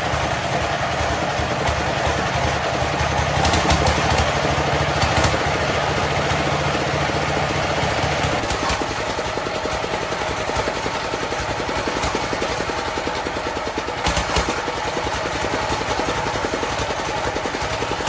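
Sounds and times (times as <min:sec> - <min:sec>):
diesel engine clattering: 0:00.0 - 0:18.0
sharp engine knocks: 0:01.0 - 0:06.8, 0:14.0 - 0:15.0.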